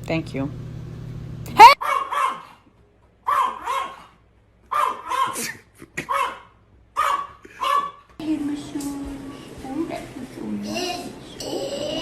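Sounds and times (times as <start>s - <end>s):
dog yelping: 1.5s - 8.0s.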